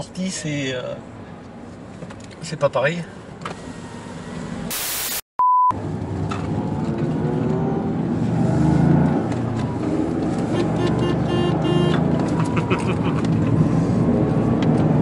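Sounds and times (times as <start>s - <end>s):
hiss burst: 4.7s - 5.2s
short steady beep: 4.7s - 5.8s
car engine accelerating: 5.8s - 15.0s.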